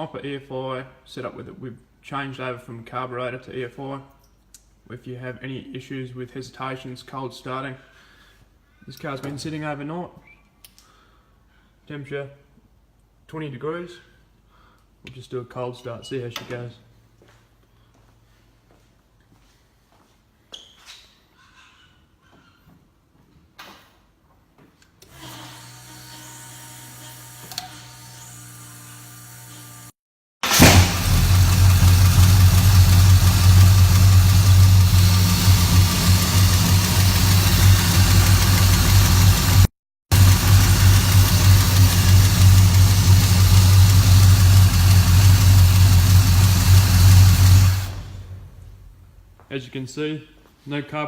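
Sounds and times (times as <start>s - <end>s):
electric fuel pump humming: 29.2s - 48.6s
car engine idling: 30.4s - 49.0s.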